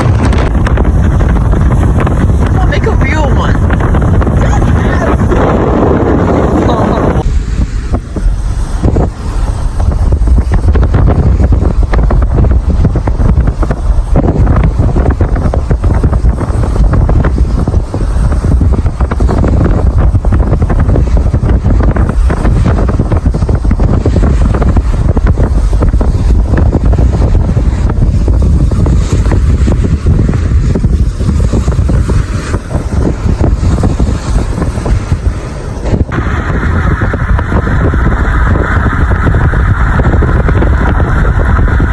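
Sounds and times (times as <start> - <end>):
strong wind blasting microphone: 0.0 - 41.9.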